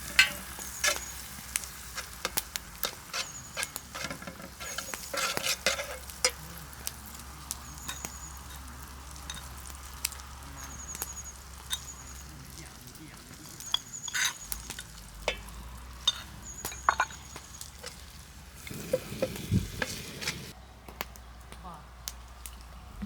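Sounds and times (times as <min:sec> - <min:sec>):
meat sizzling in a pan: 0:00.0 - 0:20.6
sharp pops and clicks: 0:00.1 - 0:06.4.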